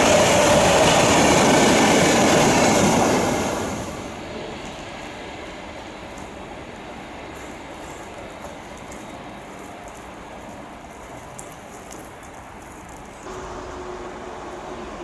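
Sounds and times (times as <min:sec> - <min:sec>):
electric train humming: 0:00.0 - 0:09.5, 0:13.2 - 0:15.0
freight train wheels rumbling: 0:00.0 - 0:15.0
light clicks of wheels: 0:06.1 - 0:06.4, 0:07.3 - 0:13.3.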